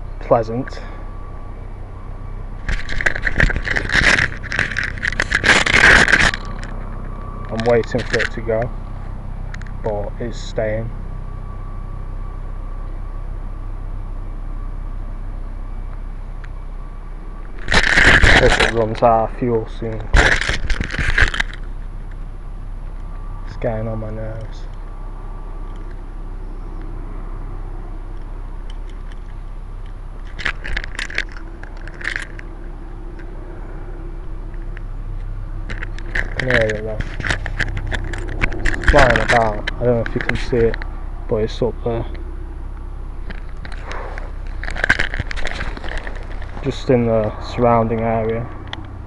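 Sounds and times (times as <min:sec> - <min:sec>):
microphone handling noise: 0:02.5 - 0:08.2, 0:35.6 - 0:41.0
helicopter in flight: 0:02.5 - 0:11.4, 0:23.0 - 0:49.0.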